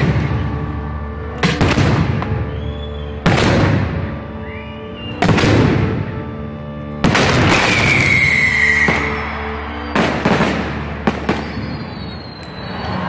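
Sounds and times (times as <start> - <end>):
falling firework whistle: 2.2 - 5.5, 7.4 - 13.0
sharp firework bangs: 7.0 - 8.1
firework blast: 7.0 - 12.9
firework crackling: 7.0 - 13.0.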